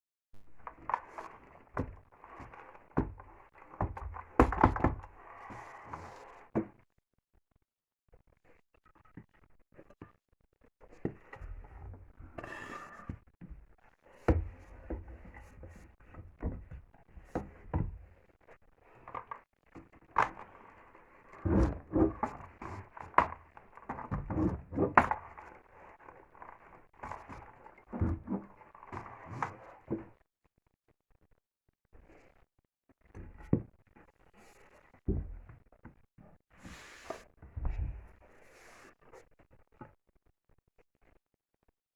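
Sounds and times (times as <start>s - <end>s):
wooden thuds and knocks: 0.6s - 5.2s, 14.3s - 18.0s, 21.4s - 25.5s, 26.4s - 30.1s, 35.1s - 35.6s, 37.4s - 38.1s.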